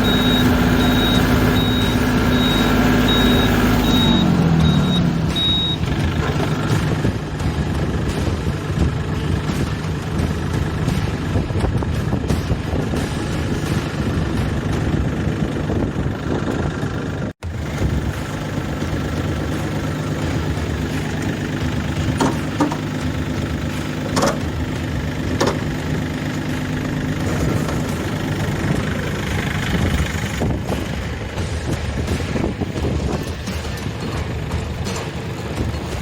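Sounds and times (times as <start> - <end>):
tractor engine running: 0.0 - 36.0.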